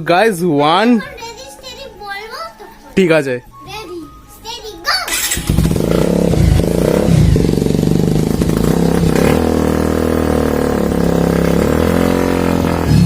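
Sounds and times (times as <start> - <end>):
motorcycle engine revving and idling: 5.1 - 13.0.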